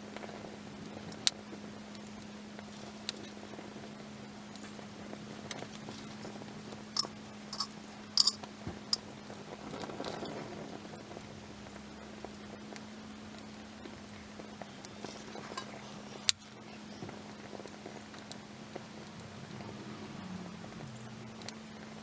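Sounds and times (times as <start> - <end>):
campfire crackling and popping: 0.1 - 19.4, 20.6 - 22.0
steady low hum: 4.3 - 9.1.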